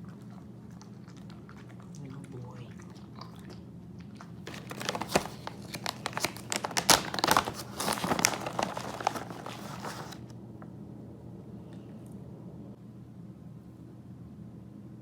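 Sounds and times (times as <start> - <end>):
plastic crumpled and torn: 4.5 - 10.3.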